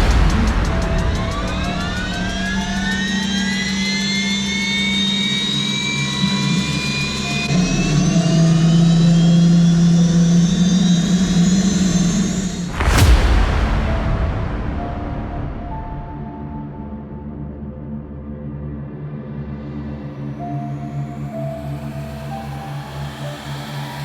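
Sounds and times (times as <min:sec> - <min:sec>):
loud burst of noise: 0:00.0 - 0:04.9, 0:10.2 - 0:16.8
low hum: 0:00.0 - 0:04.9, 0:07.6 - 0:17.6.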